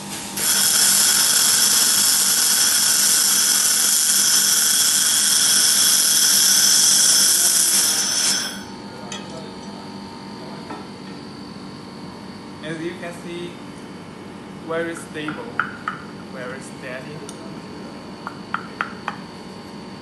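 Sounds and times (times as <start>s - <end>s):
laser welder hissing: 0.0s - 8.7s.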